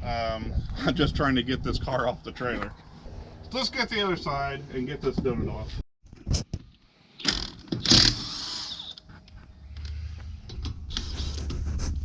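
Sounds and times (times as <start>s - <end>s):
impact wrench bursts: 7.2s - 9.0s
low steady rumble: 9.2s - 12.0s.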